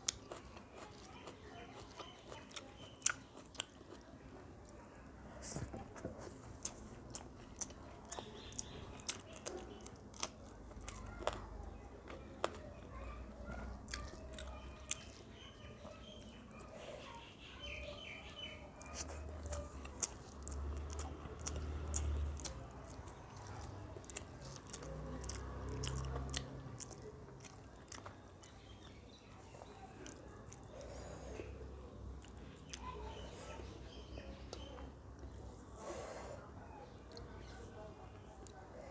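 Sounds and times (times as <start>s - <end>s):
person chewing crunchy food: 0.0s - 4.7s, 6.2s - 12.6s, 18.8s - 32.9s.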